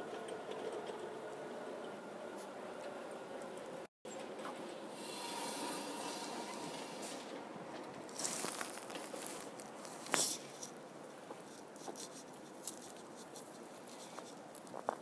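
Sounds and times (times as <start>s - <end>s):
soft rustling: 7.0s - 15.0s
light crunches: 7.8s - 15.0s.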